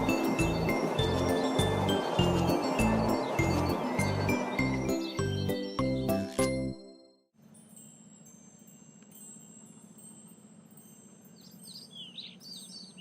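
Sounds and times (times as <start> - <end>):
soft high chiming tones: 0.0 - 5.8, 6.4 - 13.0
bird chirps: 0.0 - 6.6, 11.3 - 13.0
cartoon music with a beat: 0.0 - 7.1.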